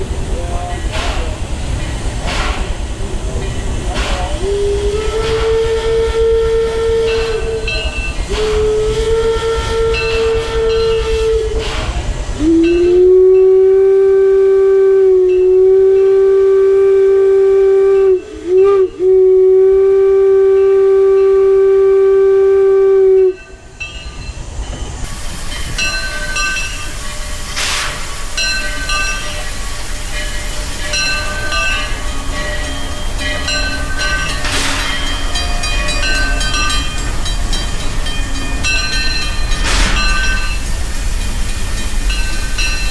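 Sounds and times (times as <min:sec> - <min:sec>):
train wheels clattering: 0:00.0 - 0:13.5, 0:23.3 - 0:42.9
high-pitched steam whistle blasts: 0:04.0 - 0:23.6, 0:25.0 - 0:42.9
low-pitched steam whistle blast: 0:04.1 - 0:23.6, 0:25.0 - 0:42.9.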